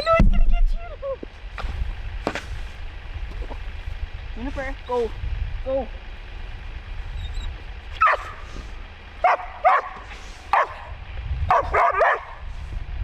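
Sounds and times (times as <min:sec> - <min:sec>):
low steady rumble: 0:00.0 - 0:13.0
dog barking in sharp yips: 0:08.0 - 0:08.4, 0:09.2 - 0:10.8, 0:11.5 - 0:12.4.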